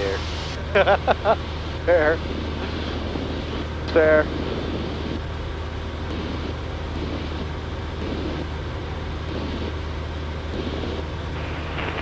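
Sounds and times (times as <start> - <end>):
airplane engine and propeller drone: 0.0 - 12.0
rushing air noise: 1.5 - 5.3, 10.5 - 12.0.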